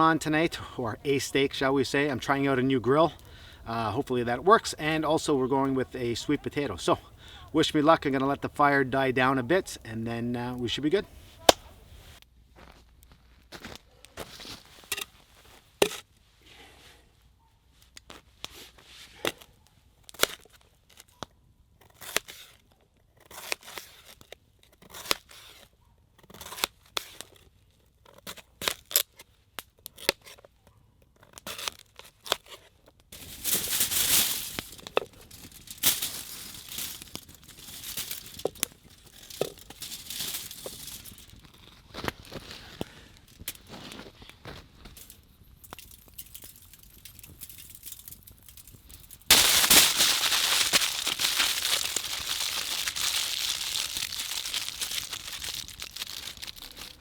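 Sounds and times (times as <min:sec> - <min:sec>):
campfire crackling and popping: 0:00.0 - 0:12.2, 0:33.1 - 0:57.0.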